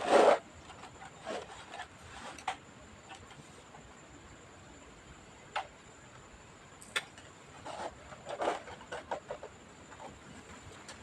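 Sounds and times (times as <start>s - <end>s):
scraping on plastic case: 0.0s - 3.4s, 7.6s - 11.0s.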